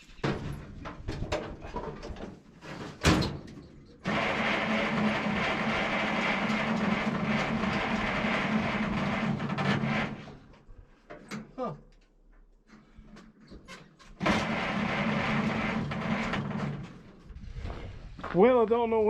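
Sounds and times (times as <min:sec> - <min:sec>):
engine cranked by starter: 0:04.0 - 0:10.4, 0:14.2 - 0:17.1.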